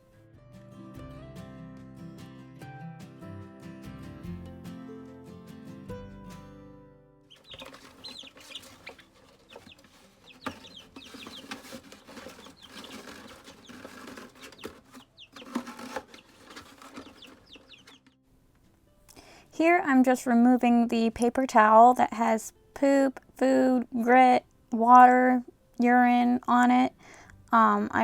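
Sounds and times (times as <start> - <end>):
scuffling and light knocks: 7.3 - 18.1
baby chicks peeping: 7.3 - 18.2.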